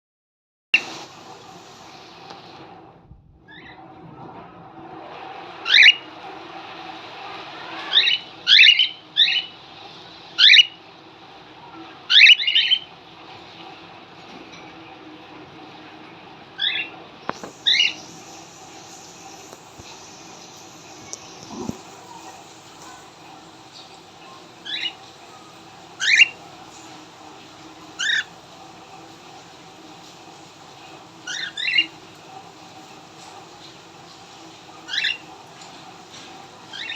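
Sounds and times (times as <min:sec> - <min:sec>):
cockatiels chirping: 0:10.4 - 0:10.8, 0:12.1 - 0:12.9, 0:24.6 - 0:25.0, 0:26.0 - 0:26.4, 0:28.0 - 0:28.3, 0:31.2 - 0:32.0, 0:34.9 - 0:35.2
cockatiel chirping: 0:12.1 - 0:12.8, 0:26.0 - 0:26.4.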